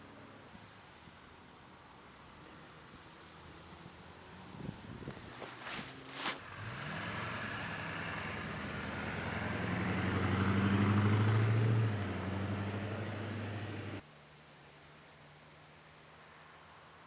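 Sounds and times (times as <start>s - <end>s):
tyres on snow: 3.4s - 14.0s
vehicle engine running: 6.4s - 14.0s.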